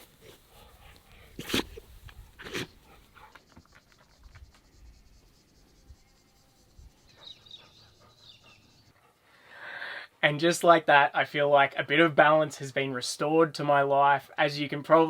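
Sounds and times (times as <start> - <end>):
faint bird chirping: 0.0 - 9.0.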